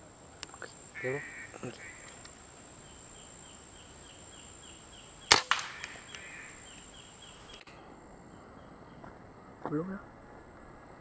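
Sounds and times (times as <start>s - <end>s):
insects chirping: 0.0s - 11.0s
air rifle shot: 5.3s - 6.3s.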